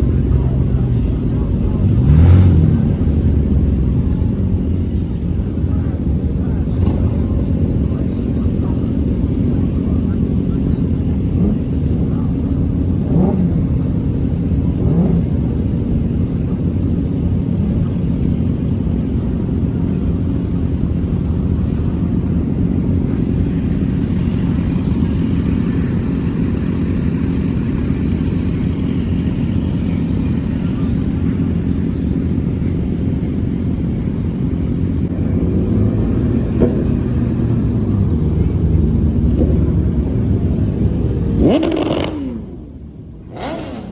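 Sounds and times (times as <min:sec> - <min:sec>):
car engine running: 0:00.0 - 0:43.9.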